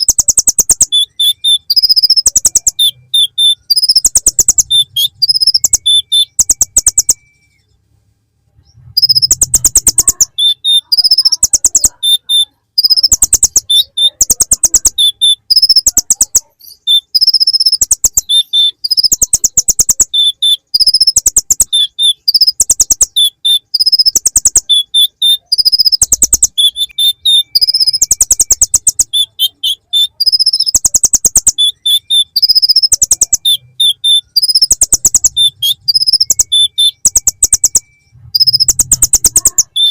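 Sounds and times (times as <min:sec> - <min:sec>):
bird singing rapid ticking trills: 0:00.0 - 0:07.7, 0:09.0 - 0:39.9.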